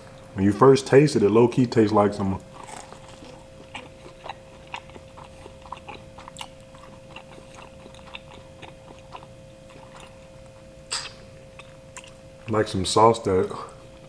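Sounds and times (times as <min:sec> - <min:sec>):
faint steady hum: 0:00.0 - 0:14.0
person chewing pizza: 0:02.2 - 0:12.7.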